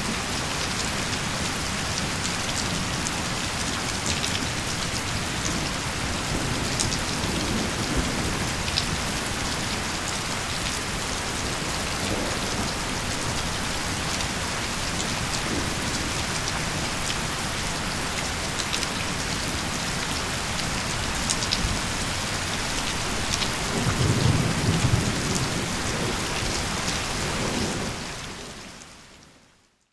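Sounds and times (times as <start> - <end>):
heavy rain: 0.0 - 29.8
low thunder rumble: 23.1 - 28.2.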